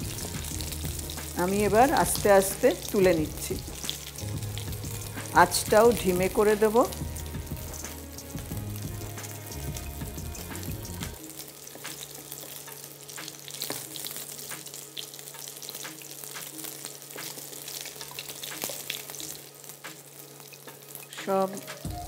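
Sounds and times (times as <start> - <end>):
dumplings sizzling in oil: 0.0 - 22.0.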